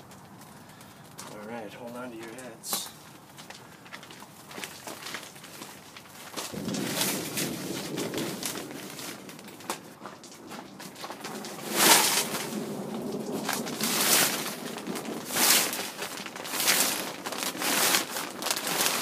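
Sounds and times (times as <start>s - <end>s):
gusty wind buffeting microphone: 6.5s - 17.3s.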